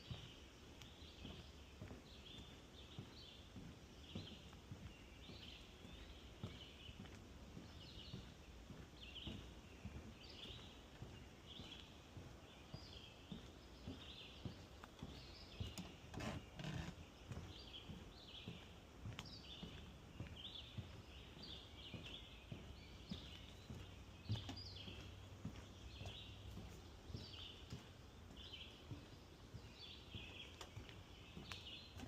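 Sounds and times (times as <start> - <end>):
birds chirping: 0.0 - 32.0
footsteps on wooden boardwalk: 0.0 - 32.0.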